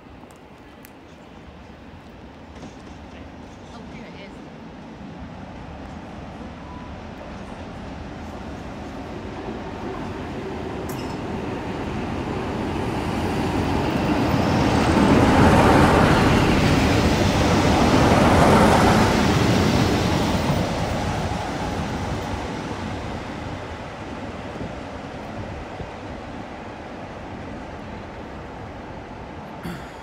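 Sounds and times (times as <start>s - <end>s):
train rumble passing: 0.0s - 30.0s.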